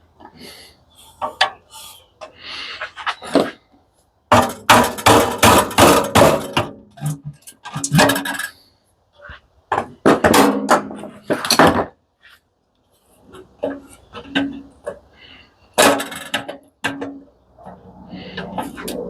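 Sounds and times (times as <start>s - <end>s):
metal parts clanking: 15.8s - 17.2s.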